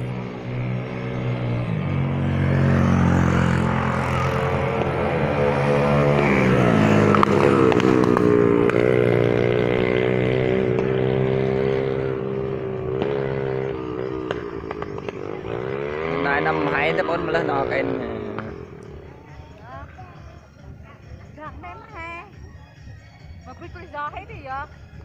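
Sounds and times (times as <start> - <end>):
vehicle engine running: 0.0 - 25.0
sharp cracks: 7.0 - 8.9.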